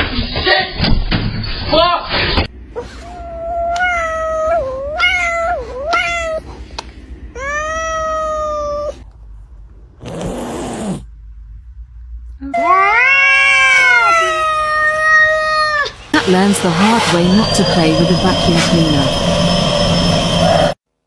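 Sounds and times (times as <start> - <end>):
cat meowing and yowling: 2.8 - 6.5, 7.4 - 9.0, 12.6 - 16.1
harsh noisy burst: 15.8 - 20.8.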